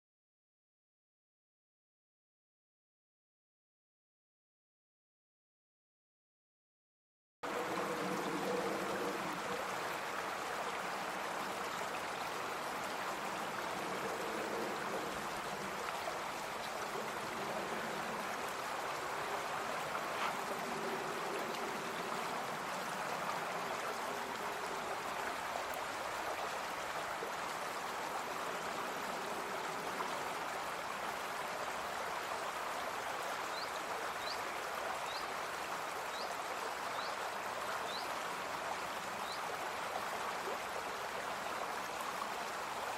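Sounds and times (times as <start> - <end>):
brook rushing water: 7.4 - 42.9
water gurgling: 7.5 - 33.4.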